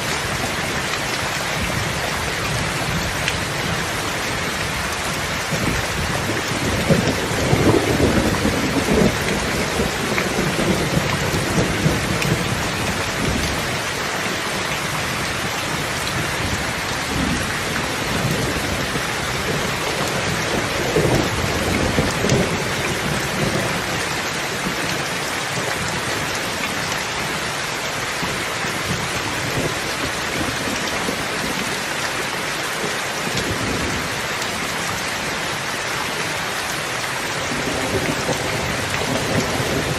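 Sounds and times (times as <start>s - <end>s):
steady rain falling: 0.0s - 39.9s
rolling thunder: 5.6s - 13.5s.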